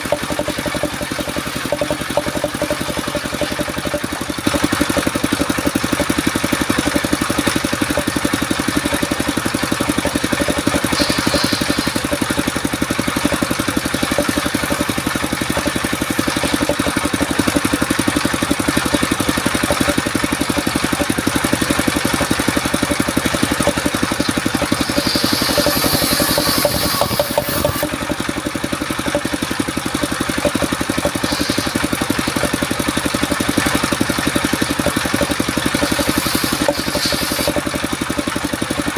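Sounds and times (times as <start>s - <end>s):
sawmill engine running: 0.0s - 38.9s
high-pitched hissing bursts: 11.0s - 12.1s, 24.8s - 27.9s, 36.0s - 37.6s.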